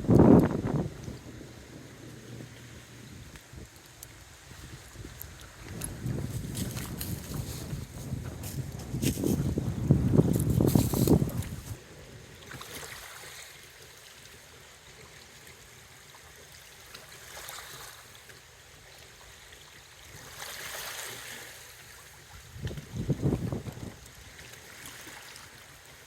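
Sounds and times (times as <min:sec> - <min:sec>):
gusty wind: 0:00.0 - 0:12.3, 0:22.4 - 0:24.1.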